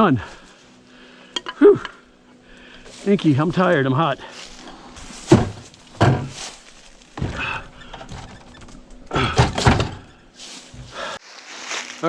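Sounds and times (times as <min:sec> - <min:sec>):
dull thumps and knocks: 0:05.0 - 0:11.0.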